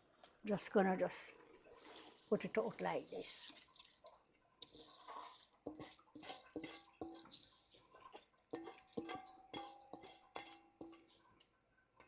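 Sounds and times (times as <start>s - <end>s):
utensil knocking on metal pot: 3.2s - 11.2s.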